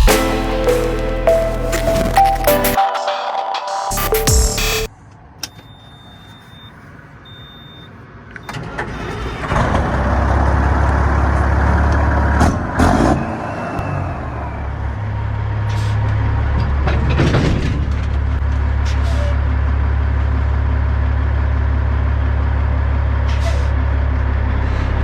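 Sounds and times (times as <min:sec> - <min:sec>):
faint high beeps: 0:02.0 - 0:09.1
diesel truck engine starting: 0:03.9 - 0:25.0.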